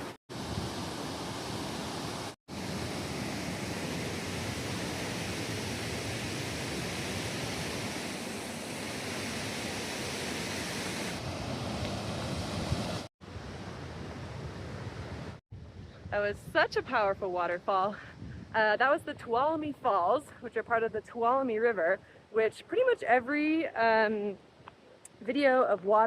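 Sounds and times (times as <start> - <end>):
waterfall rushing water: 0.0 - 13.1.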